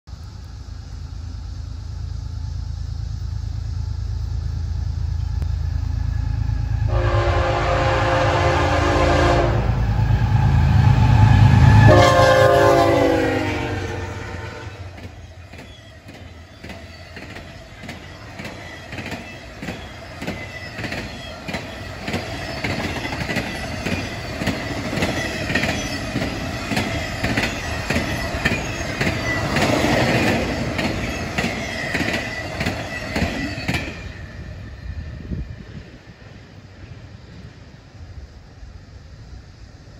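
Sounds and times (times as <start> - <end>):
diesel locomotive rumble: 0.1 - 39.9
train air horn blasts: 6.8 - 15.0
wheels clacking over rails: 14.9 - 34.3.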